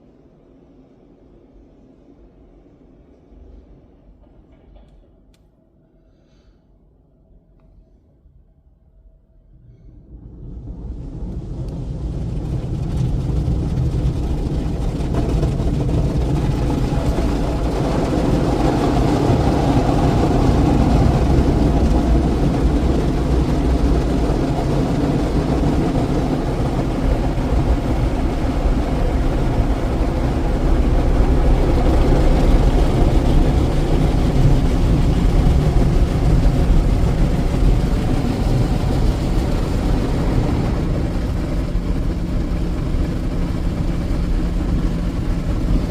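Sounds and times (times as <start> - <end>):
automatic car wash running: 10.1 - 45.9.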